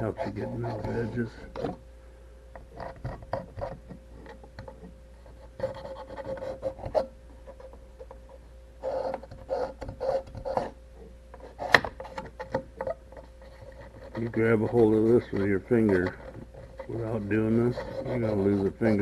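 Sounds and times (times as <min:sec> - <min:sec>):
deburring tool scraping metal edge: 0:11.4 - 0:19.0.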